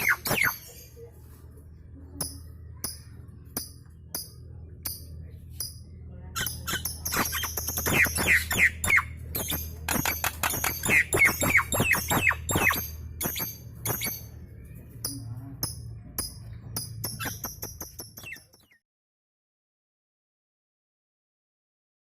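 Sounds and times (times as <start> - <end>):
myna chattering and whistling: 0.0 - 1.1, 6.3 - 14.4, 17.0 - 18.8
birds chip notes: 0.0 - 18.8.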